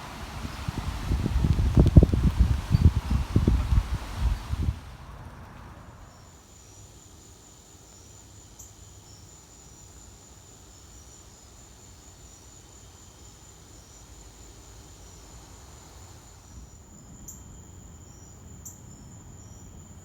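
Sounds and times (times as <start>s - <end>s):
low wind rumble: 0.0s - 6.3s
insects trilling high drone: 5.2s - 20.0s
faint short insect chirps: 6.0s - 20.0s.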